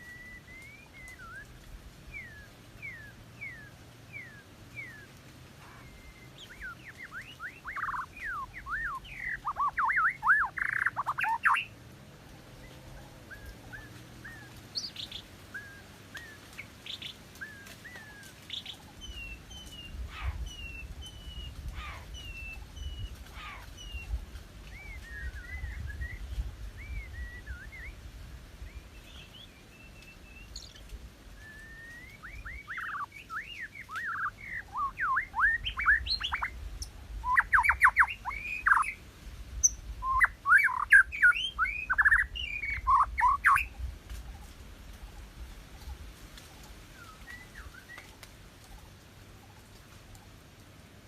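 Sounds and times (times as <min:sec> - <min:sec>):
bird singing whistled phrases: 0:00.0 - 0:01.5, 0:02.1 - 0:05.1, 0:05.7 - 0:11.7, 0:24.7 - 0:28.0, 0:31.4 - 0:36.6, 0:37.2 - 0:39.0, 0:39.6 - 0:43.7.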